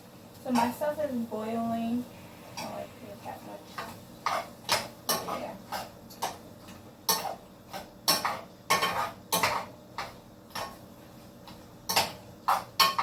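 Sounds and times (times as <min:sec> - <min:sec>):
metal utensil scraping a pot: 0:03.7 - 0:06.4, 0:07.1 - 0:10.8.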